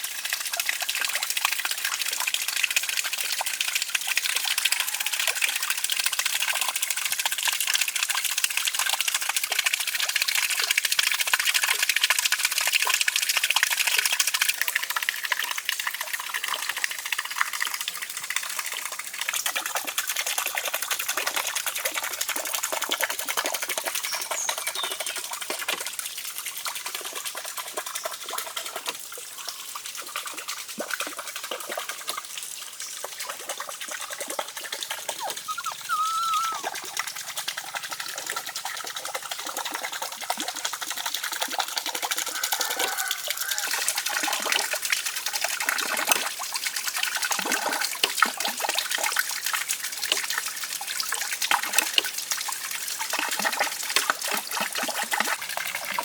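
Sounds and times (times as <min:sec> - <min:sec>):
water splashing and trickling: 0:00.0 - 0:56.0
high wavering squeak: 0:35.2 - 0:36.6.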